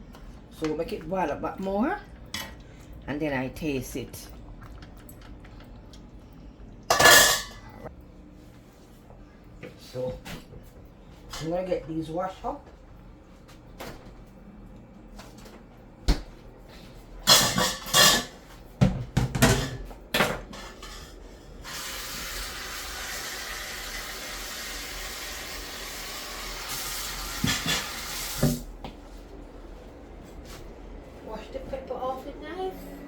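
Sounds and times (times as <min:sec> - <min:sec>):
kitchen utensils clattering: 0:06.9 - 0:07.8, 0:17.2 - 0:18.4, 0:19.2 - 0:21.2, 0:27.4 - 0:28.1
kitchen tap running: 0:21.6 - 0:28.6.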